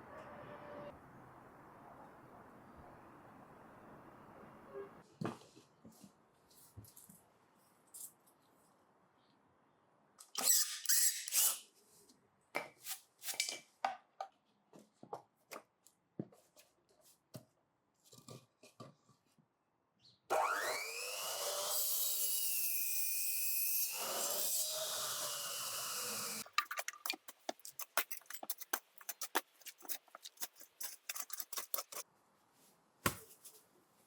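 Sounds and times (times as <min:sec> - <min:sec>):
power tool motor spinning: 0:20.3 - 0:21.8.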